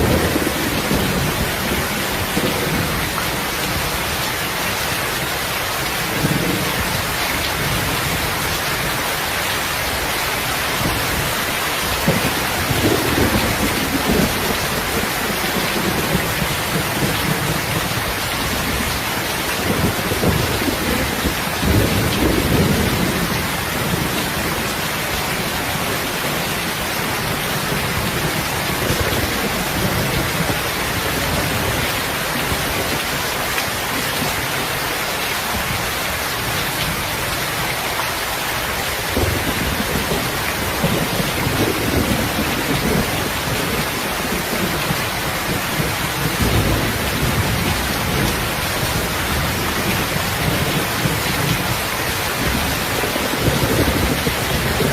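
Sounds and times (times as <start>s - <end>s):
thunder rumbling: 0.0s - 4.2s, 10.6s - 33.2s, 39.0s - 54.9s
steady rain hiss: 0.0s - 54.9s.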